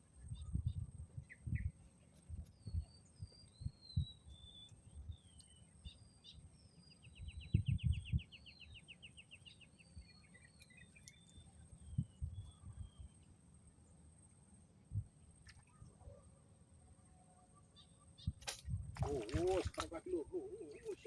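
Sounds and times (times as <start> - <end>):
wind buffeting microphone: 0.2 - 4.2, 7.2 - 8.4, 11.8 - 13.1, 18.2 - 21.0
birds whistling: 19.1 - 21.0.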